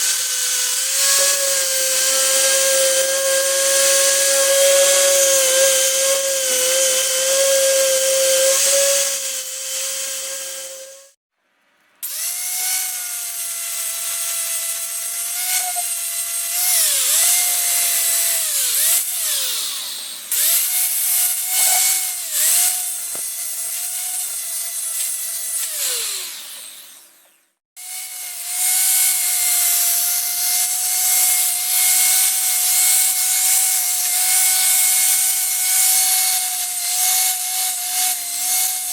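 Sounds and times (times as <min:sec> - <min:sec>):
grinder cutting metal: 0:00.0 - 0:11.2, 0:12.0 - 0:27.2, 0:27.8 - 0:38.9
grinder spinning down: 0:00.0 - 0:11.2, 0:12.0 - 0:27.1.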